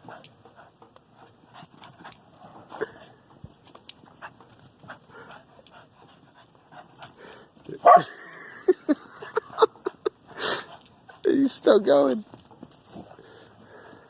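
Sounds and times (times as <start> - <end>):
dog panting: 0.0 - 3.3, 4.0 - 7.9, 9.1 - 14.0
dog yelping: 7.8 - 8.1.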